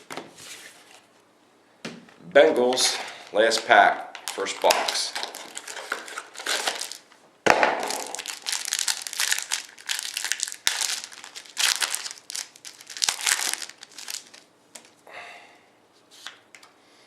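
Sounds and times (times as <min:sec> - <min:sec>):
foil wrapper tearing and crinkling: 0:03.5 - 0:07.1, 0:07.8 - 0:15.0.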